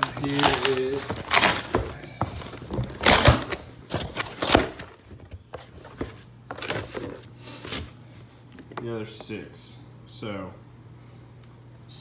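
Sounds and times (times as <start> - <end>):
plastic bottles rustling and bumping: 0.0 - 8.9.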